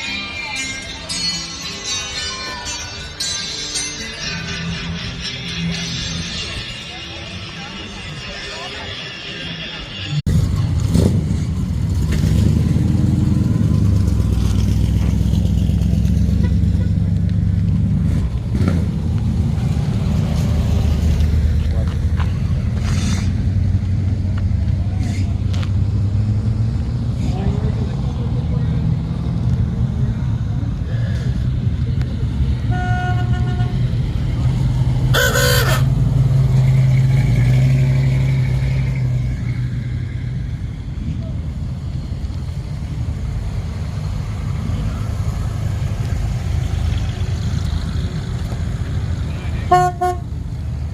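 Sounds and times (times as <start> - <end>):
high-pitched call: 35.1 - 36.0.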